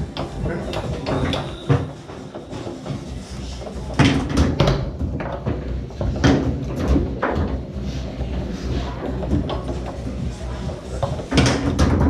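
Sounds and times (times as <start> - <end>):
foosball rods clacking: 0.0 - 7.7, 9.1 - 10.1, 10.7 - 12.0
foosball ball knocking: 3.9 - 7.6, 11.1 - 12.0.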